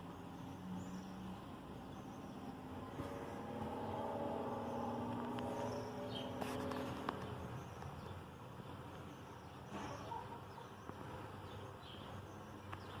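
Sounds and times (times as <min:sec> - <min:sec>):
washing machine motor hum: 0:01.2 - 0:07.6.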